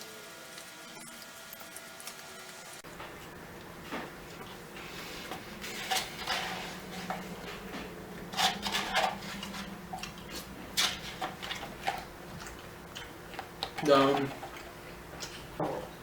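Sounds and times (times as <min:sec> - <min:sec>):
person chewing: 0:06.9 - 0:15.6.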